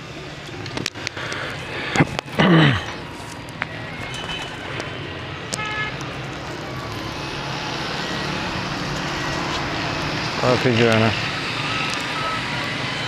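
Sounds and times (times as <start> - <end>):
traffic noise: 0.0 - 13.0
car horn toots: 5.5 - 6.0.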